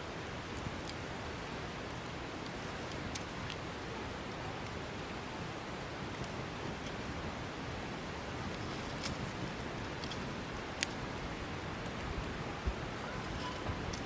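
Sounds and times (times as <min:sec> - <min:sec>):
wood fire hissing: 0:00.0 - 0:14.0
fire crackling pops: 0:00.1 - 0:14.0.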